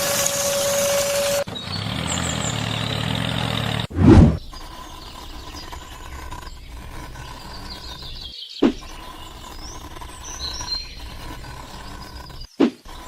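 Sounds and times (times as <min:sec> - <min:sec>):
short thump: 0:03.9 - 0:04.4.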